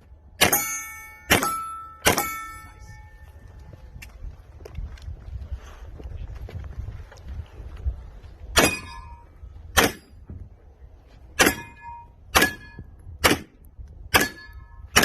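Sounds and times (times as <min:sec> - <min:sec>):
steel plates ringing: 0:00.4 - 0:03.4, 0:11.4 - 0:12.9
pistol shots: 0:09.7 - 0:10.1, 0:12.3 - 0:15.0.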